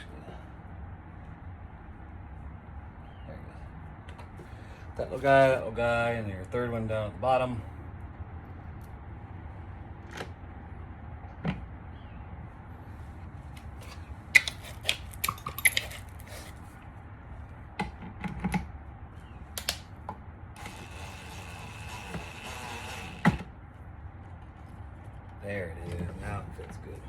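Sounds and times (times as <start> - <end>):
hand tools and parts clicking: 13.8 - 16.6, 19.6 - 19.8, 20.6 - 23.4.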